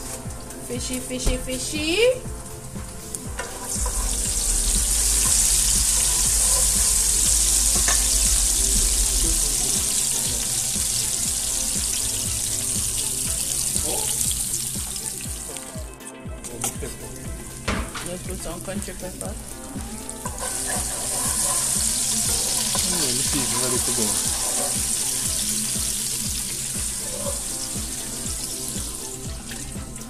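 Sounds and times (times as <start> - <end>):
vegetables sizzling in oil: 0.0 - 15.8, 16.6 - 30.0
wooden spatula stirring: 19.5 - 25.1.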